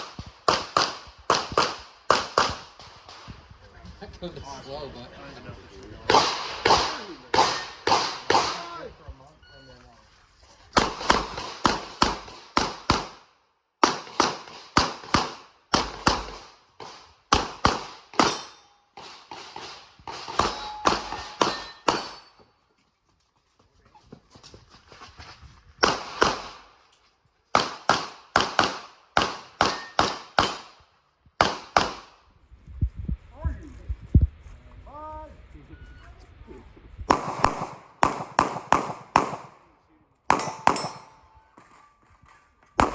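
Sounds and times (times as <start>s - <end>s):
pistol shots: 0.0s - 3.2s, 6.1s - 8.7s, 10.8s - 22.3s, 25.8s - 26.7s, 27.5s - 30.8s, 31.4s - 32.2s, 37.1s - 39.6s, 40.3s - 41.2s.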